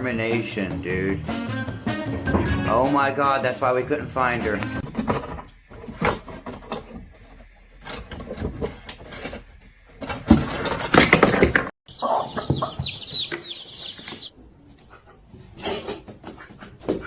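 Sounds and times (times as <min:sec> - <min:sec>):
rapid high chirping: 0:11.9 - 0:14.3
bird-like clucking calls: 0:11.9 - 0:14.4.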